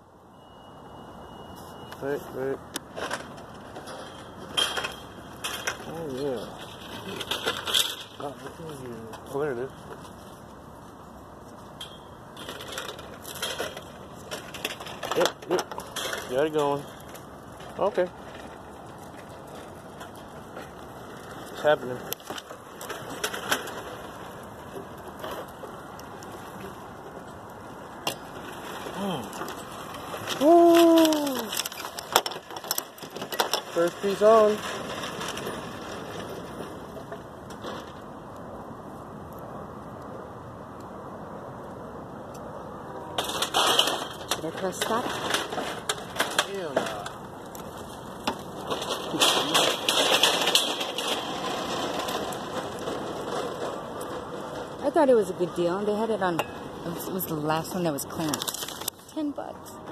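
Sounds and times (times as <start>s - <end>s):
wiper blade rustling and clattering: 43.2s - 59.2s.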